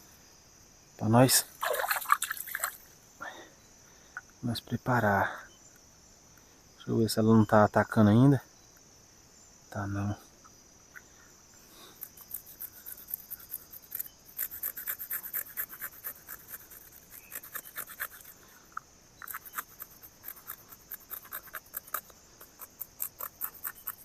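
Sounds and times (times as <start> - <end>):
high insect trill: 0.0 - 24.0
knife scraping fish: 12.0 - 18.3.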